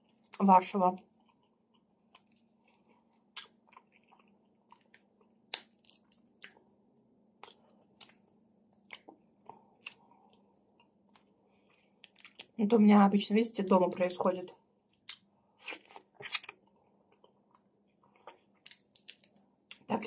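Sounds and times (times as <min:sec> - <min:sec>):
wet mouth clicks and smacks: 0:04.8 - 0:06.6.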